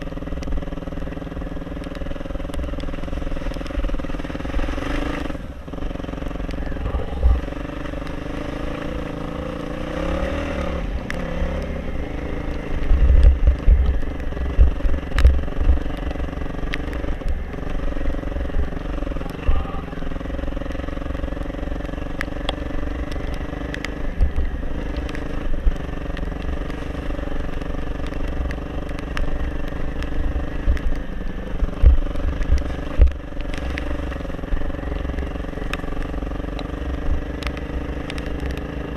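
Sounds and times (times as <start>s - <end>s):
motorcycle engine running: 0.0s - 38.9s
low thuds: 12.5s - 16.3s.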